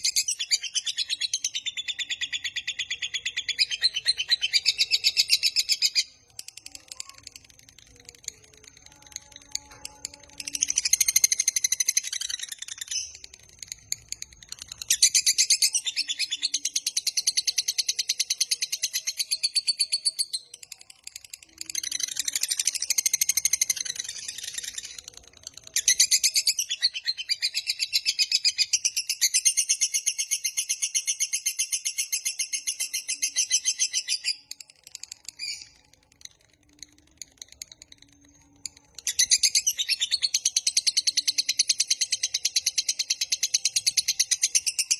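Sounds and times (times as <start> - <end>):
lovebird chattering song: 36.8 - 44.9.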